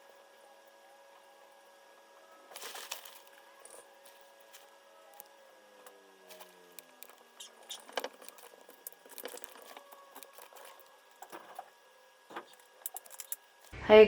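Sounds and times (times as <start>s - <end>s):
small objects clicking and tapping: 4.5s - 11.7s, 12.3s - 13.8s.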